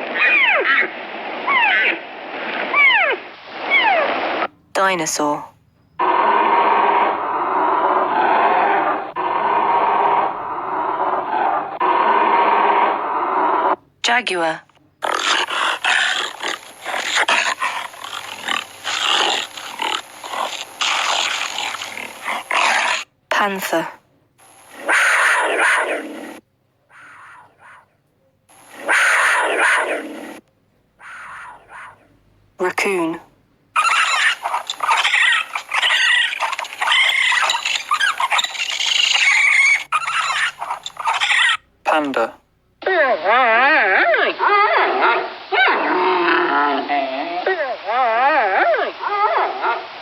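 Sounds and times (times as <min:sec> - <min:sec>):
jaguar growling: 0:06.0 - 0:13.8, 0:15.0 - 0:23.1, 0:24.7 - 0:27.9, 0:28.7 - 0:30.4, 0:31.0 - 0:32.1, 0:33.8 - 0:41.6, 0:43.2 - 0:50.0
raccoon squeals and chitters: 0:33.8 - 0:41.7.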